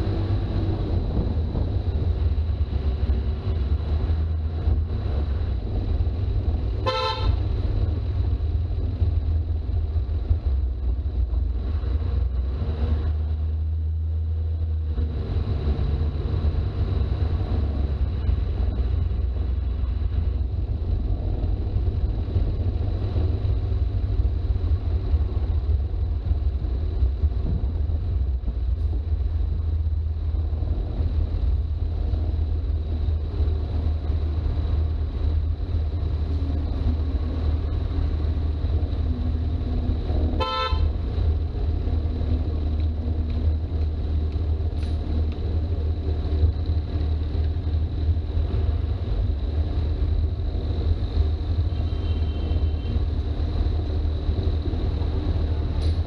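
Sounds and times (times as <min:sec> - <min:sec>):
diesel engine rumbling while driving: 0:00.0 - 0:56.0
short horn toot: 0:06.8 - 0:07.4, 0:40.4 - 0:40.9.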